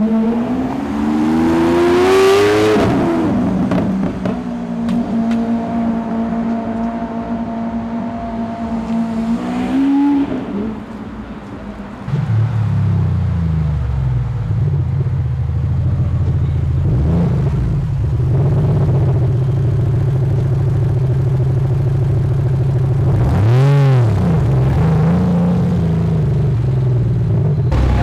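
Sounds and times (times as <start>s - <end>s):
car engine rumbling: 0.0s - 28.0s
engine rev blip: 27.7s - 28.0s.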